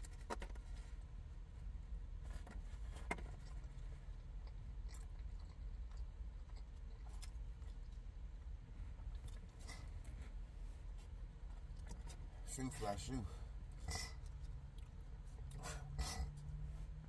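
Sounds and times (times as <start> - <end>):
person chewing food: 3.0 - 10.3, 11.0 - 12.3, 13.6 - 16.5.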